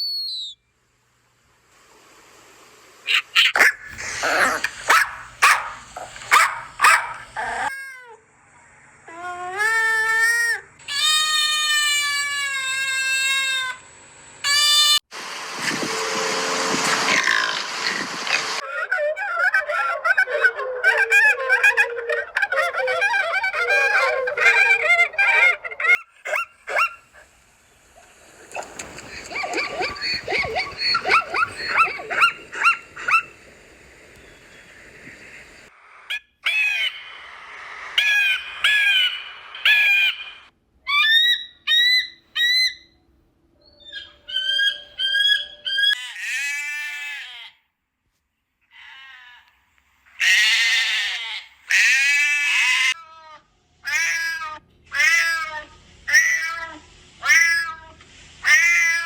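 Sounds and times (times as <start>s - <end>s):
bird calls: 0.0s - 0.6s, 3.0s - 7.7s, 28.0s - 37.2s, 38.0s - 43.0s, 43.6s - 46.0s
animal calls: 3.1s - 8.2s, 17.1s - 27.3s, 28.0s - 33.5s, 38.0s - 43.0s, 43.7s - 47.6s, 48.7s - 59.0s.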